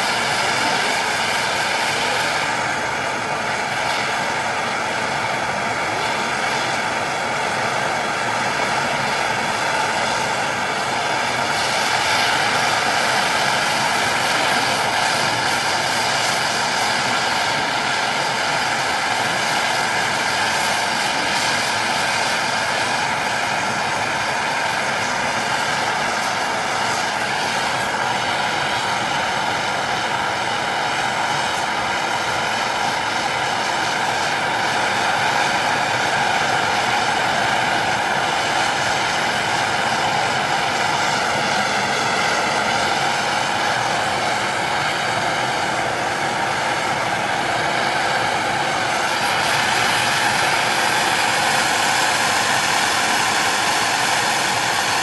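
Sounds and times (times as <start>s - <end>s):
hiss: 8.1s - 31.6s, 47.7s - 55.0s.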